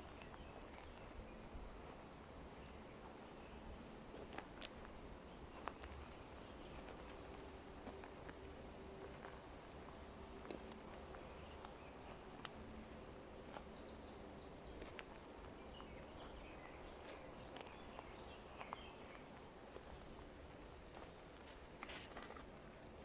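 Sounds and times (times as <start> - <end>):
low steady forest background: 0.0 - 23.0.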